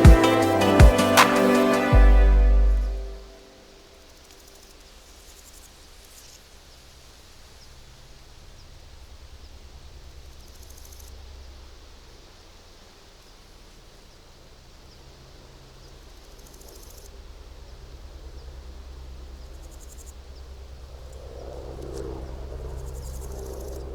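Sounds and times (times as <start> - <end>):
wind rustling plants: 0.0 - 23.9
insects trilling: 3.3 - 23.9
low wind rumble: 6.6 - 23.9.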